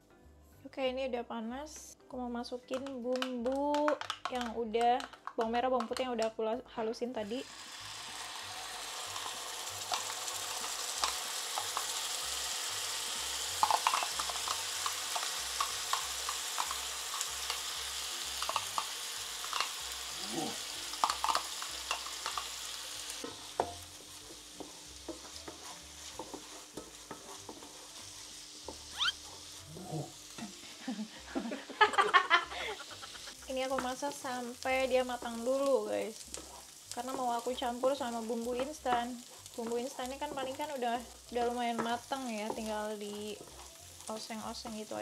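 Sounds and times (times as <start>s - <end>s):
paste sizzling in hot oil: 7.2s - 45.0s.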